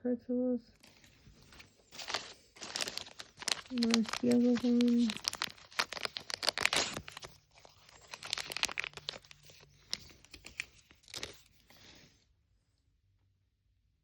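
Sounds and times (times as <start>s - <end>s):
plastic wrappers crinkling and tearing: 0.8s - 12.0s.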